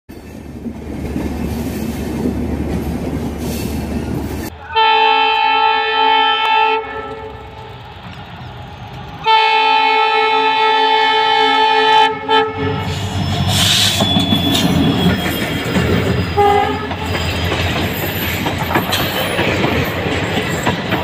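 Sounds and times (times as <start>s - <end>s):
train rumbling on rails: 0.1s - 21.0s
train horn blasts: 4.5s - 7.8s, 9.2s - 15.1s, 16.3s - 17.1s.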